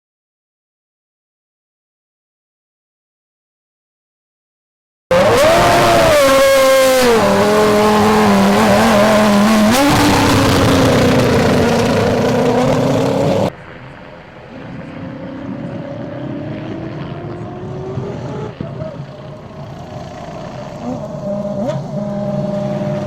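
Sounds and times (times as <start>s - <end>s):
distant engine rising in pitch: 5.1s - 23.0s
racing car engine: 5.1s - 23.0s.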